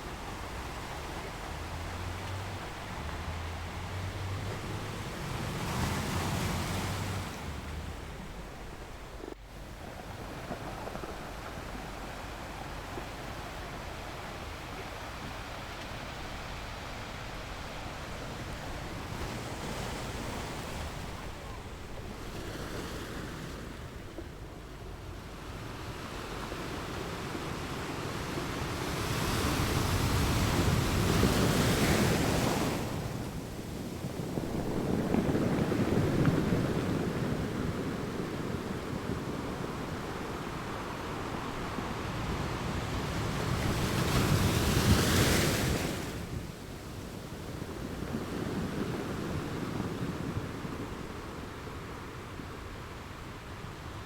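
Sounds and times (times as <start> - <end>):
sea waves breaking: 0.0 - 54.0.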